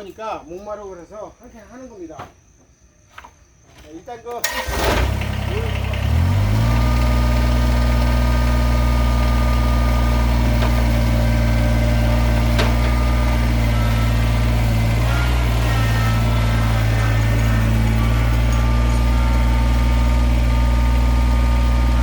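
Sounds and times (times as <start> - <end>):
chainsaw idling: 4.4 - 22.0.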